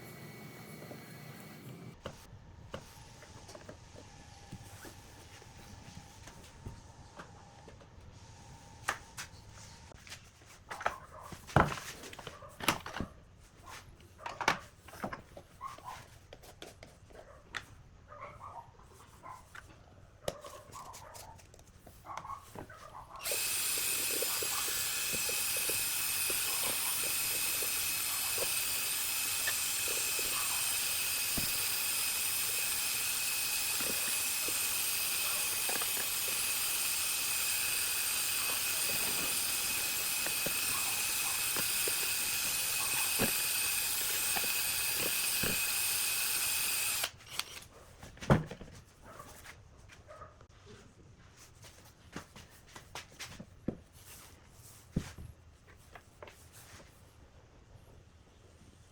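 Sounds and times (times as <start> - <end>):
power tool whining: 23.2 - 47.6.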